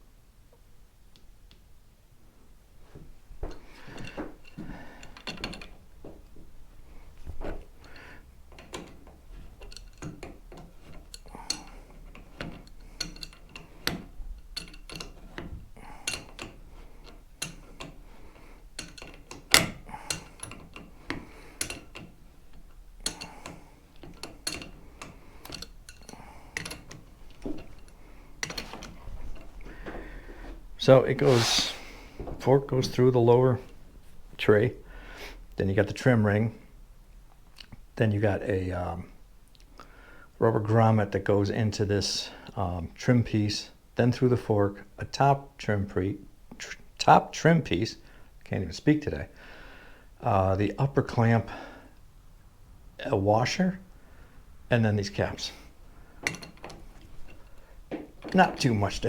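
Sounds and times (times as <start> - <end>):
hand tools and metal parts clinking: 3.4 - 33.0, 54.7 - 59.0.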